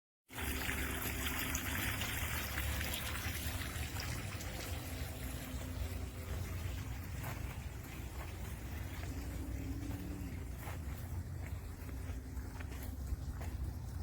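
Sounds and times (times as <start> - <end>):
fountain water trickling and splashing: 0.3 - 14.0
low rumble: 3.0 - 14.0.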